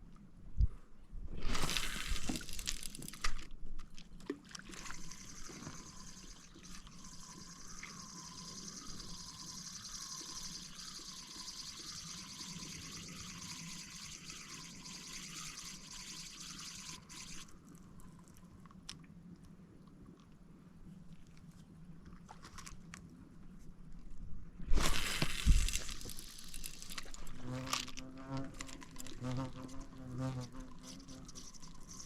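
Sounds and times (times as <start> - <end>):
water splashing and pouring: 1.4 - 3.4, 4.0 - 17.6, 24.7 - 32.0
water trickling: 4.4 - 18.2, 25.0 - 32.0.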